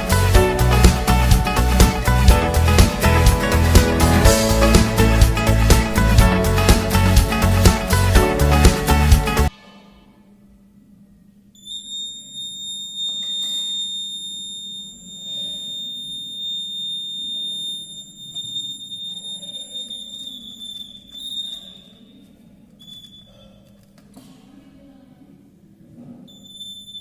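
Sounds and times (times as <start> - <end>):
alarm buzzer high-pitched tone: 11.6 - 22.0.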